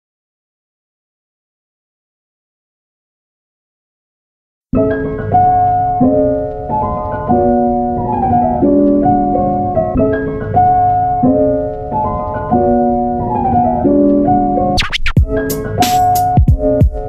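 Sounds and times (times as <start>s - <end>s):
piano playing chords: 4.8s - 17.0s.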